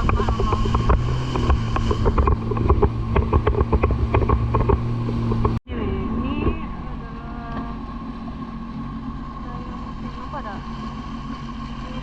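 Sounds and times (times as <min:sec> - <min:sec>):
sharp knocks: 0:00.0 - 0:05.6
jet ski engine running: 0:00.0 - 0:12.0.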